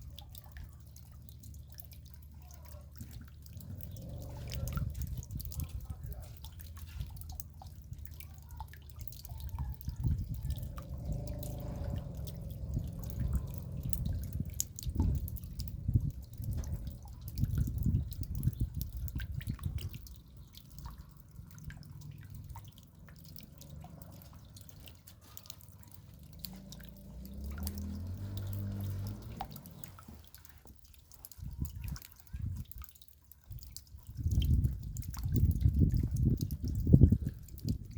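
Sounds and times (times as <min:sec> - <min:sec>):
raindrops dripping: 0:00.0 - 0:37.9
low rumble: 0:10.0 - 0:19.1.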